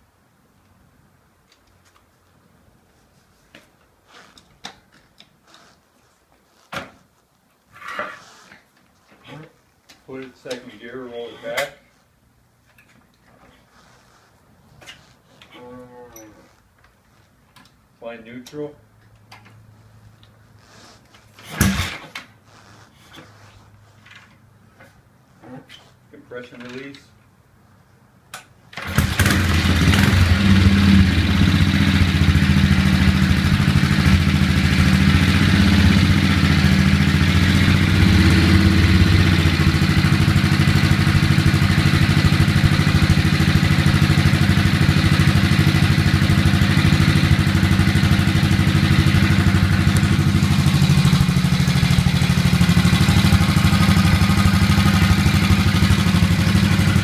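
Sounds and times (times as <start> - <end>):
motorcycle engine starting and running: 21.4 - 22.6, 28.7 - 57.0.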